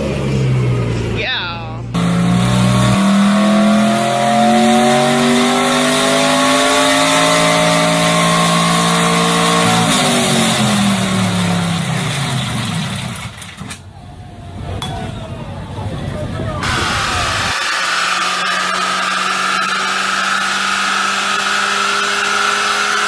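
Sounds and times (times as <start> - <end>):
car engine accelerating: 1.8 - 13.5, 16.5 - 23.0.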